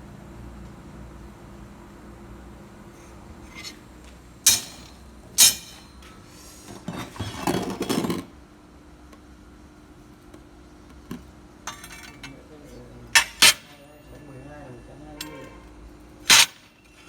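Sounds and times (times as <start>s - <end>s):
metal pieces clanking: 4.5s - 6.0s, 11.7s - 12.4s, 13.2s - 13.8s, 16.3s - 17.0s.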